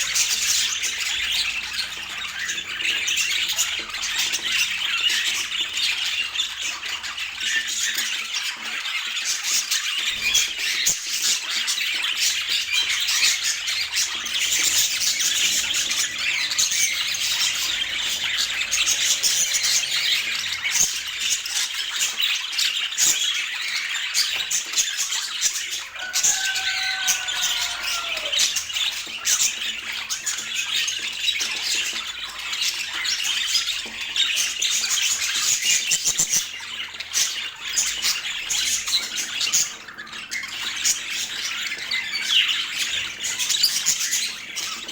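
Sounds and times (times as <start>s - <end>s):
budgerigars chattering and squawking: 0.0s - 44.9s
downward gliding bird call: 26.0s - 28.6s.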